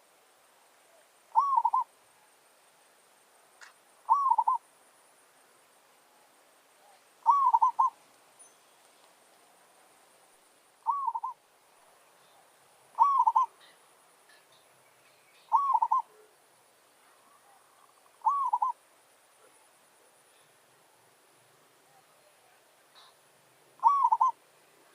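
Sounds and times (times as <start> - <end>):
dove cooing: 0.9 - 1.9, 4.1 - 4.6, 6.8 - 8.0, 10.8 - 11.4, 13.0 - 13.8, 15.5 - 16.3, 17.3 - 18.8, 23.8 - 24.4.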